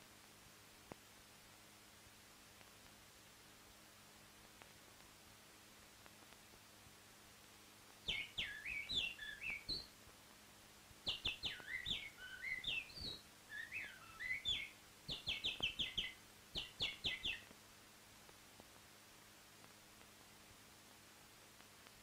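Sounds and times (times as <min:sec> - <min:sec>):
songbird singing: 0:08.0 - 0:10.0, 0:11.0 - 0:17.5.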